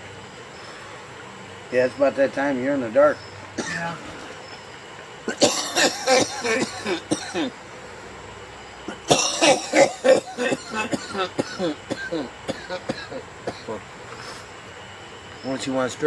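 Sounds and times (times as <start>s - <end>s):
person coughing: 5.3s - 7.6s, 8.9s - 13.8s.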